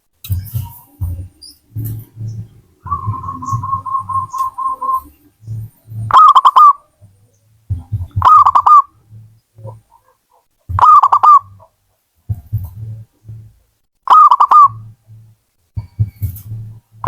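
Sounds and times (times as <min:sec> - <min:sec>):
low dull thuds: 0:00.0 - 0:13.8, 0:14.8 - 0:17.0
dove cooing: 0:00.3 - 0:11.7, 0:14.1 - 0:15.0.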